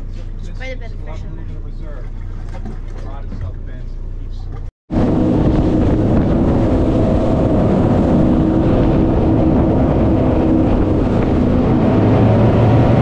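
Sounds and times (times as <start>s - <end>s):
boat engines humming: 0.0s - 13.0s
loud rushing noise: 4.9s - 13.0s.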